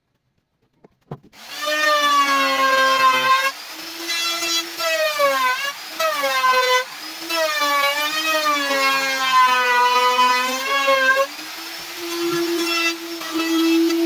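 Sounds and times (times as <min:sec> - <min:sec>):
table saw whining cutting wood: 0:01.4 - 0:14.0.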